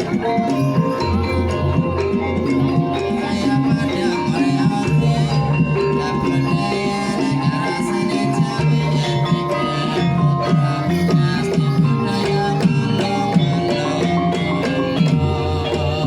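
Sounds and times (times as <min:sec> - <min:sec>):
tuned percussion ensemble: 0:00.0 - 0:16.0.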